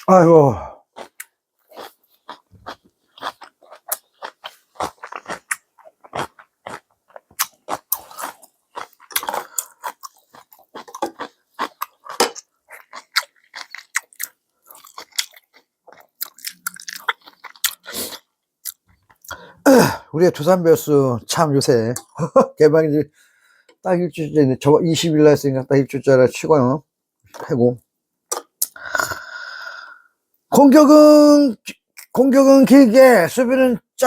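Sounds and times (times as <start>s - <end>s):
person chewing food: 0.8s - 19.5s.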